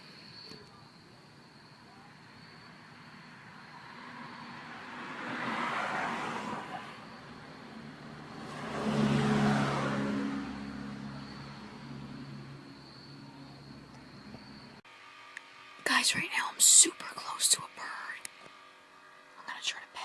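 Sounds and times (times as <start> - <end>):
road vehicles passing by: 0.0 - 15.7.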